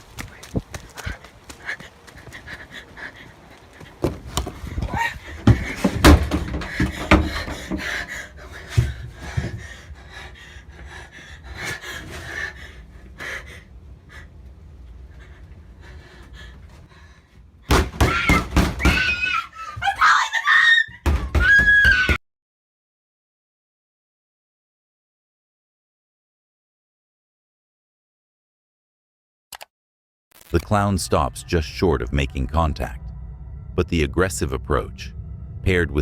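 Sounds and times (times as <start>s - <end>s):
heavy thuds and bangs: 4.0s - 9.7s
woman crying out in fright: 18.0s - 22.2s.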